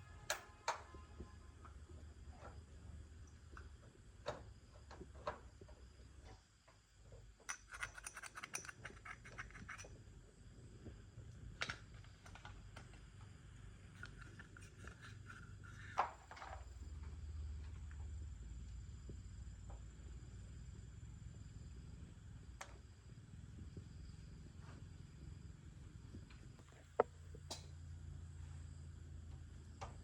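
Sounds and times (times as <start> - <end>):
low steady hum: 0.0 - 30.0
metal parts and tools clinking: 7.4 - 9.9.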